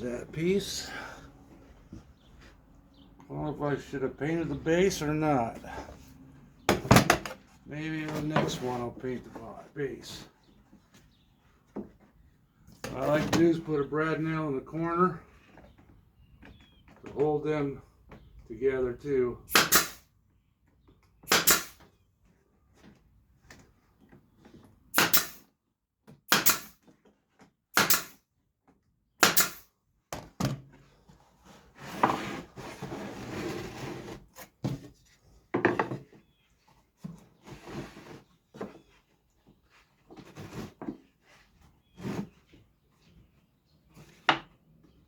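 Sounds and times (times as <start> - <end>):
brad nailer firing: 19.5 - 20.0, 21.3 - 21.8, 25.0 - 25.4, 26.3 - 26.8, 27.7 - 28.2, 29.2 - 29.7.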